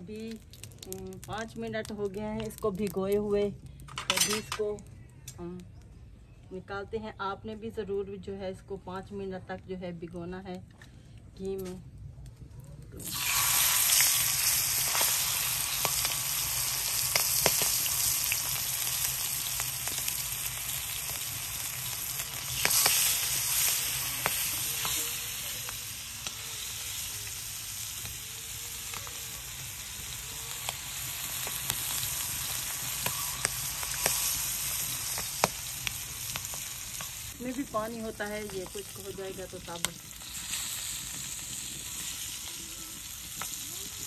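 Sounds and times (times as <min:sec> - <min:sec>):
liver sizzling in hot fat: 0:13.0 - 0:44.0.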